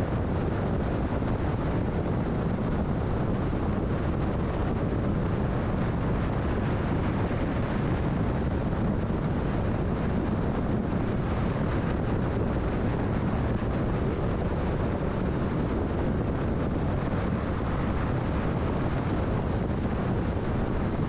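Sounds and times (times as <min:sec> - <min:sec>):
car road noise: 0:00.0 - 0:21.0.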